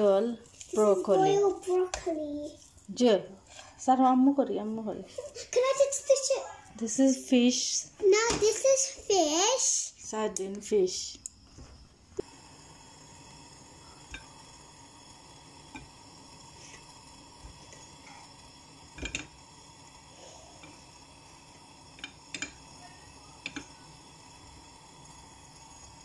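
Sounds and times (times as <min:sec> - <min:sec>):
faint steady hum: 0:09.8 - 0:26.0
utensils clinking on dishes: 0:19.0 - 0:19.3, 0:22.0 - 0:22.6.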